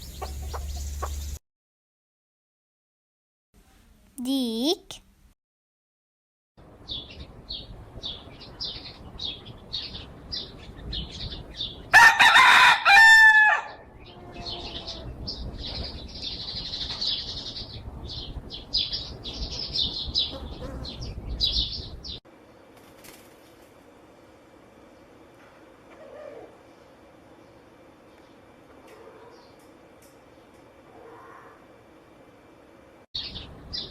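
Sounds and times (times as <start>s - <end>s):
rooster crowing: 11.9s - 15.2s, 31.0s - 31.6s.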